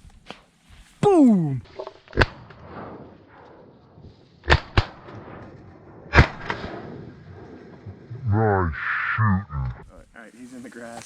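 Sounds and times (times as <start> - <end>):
shotgun shots: 4.4 - 8.0.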